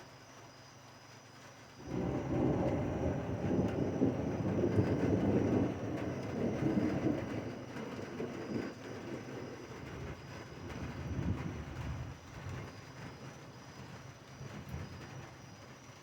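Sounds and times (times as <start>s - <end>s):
rolling thunder: 1.8s - 13.7s.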